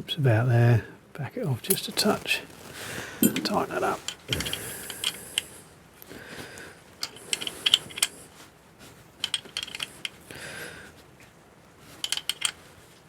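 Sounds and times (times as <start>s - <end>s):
hand tools clicking on metal: 3.2s - 5.2s.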